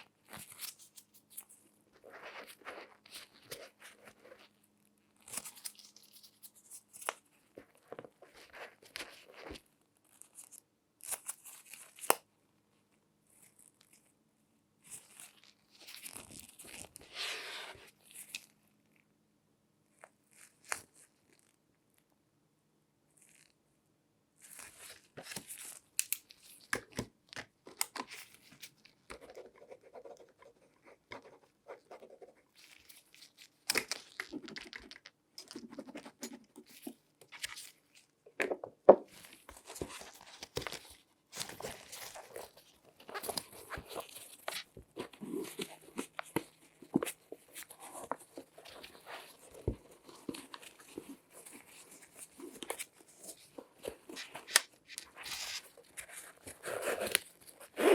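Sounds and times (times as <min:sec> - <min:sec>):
gloved hands handling a shoe: 0:24.4 - 0:57.9.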